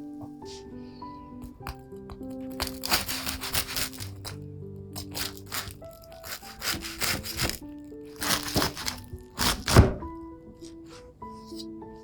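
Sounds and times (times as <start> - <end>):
toasted bread crunching: 1.4 - 4.4, 5.0 - 9.9.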